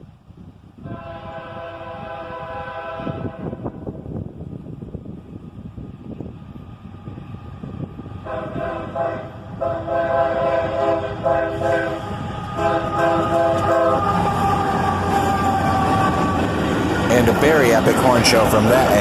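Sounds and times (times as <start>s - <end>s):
train low rumble: 0.0s - 19.0s
locomotive air horn blasts: 0.8s - 3.9s, 8.2s - 16.6s.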